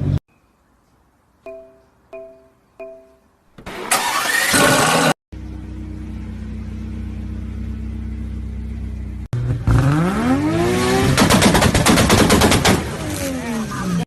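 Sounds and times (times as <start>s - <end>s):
car engine idling: 5.4s - 9.3s
engine revving up: 9.3s - 11.8s.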